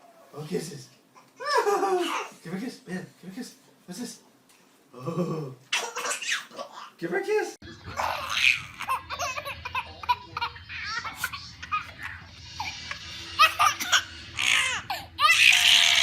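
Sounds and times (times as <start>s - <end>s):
young child laughing: 1.4s - 2.4s.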